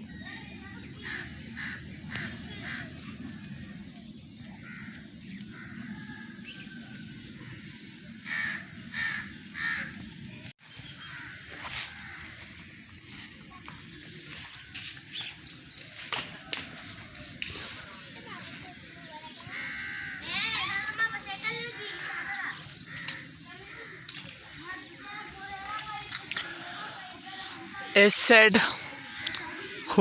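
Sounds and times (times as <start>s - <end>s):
crows cawing: 1.0s - 3.0s, 4.6s - 5.9s, 8.3s - 10.0s, 11.0s - 12.5s, 19.4s - 24.4s
birds calling with high thin notes: 4.4s - 30.0s.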